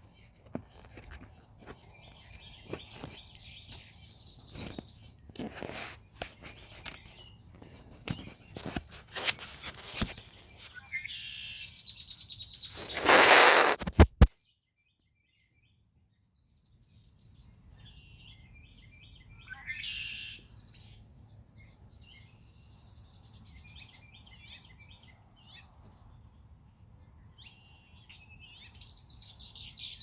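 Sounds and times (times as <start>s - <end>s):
trilled bird song: 0.0s - 13.8s, 14.4s - 26.4s, 27.0s - 30.0s
loud rustling: 12.8s - 14.2s.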